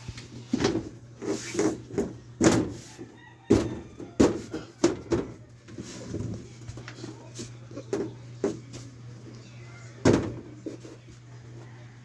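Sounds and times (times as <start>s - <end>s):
carpentry knocks and thuds: 3.5s - 5.4s, 10.0s - 10.5s.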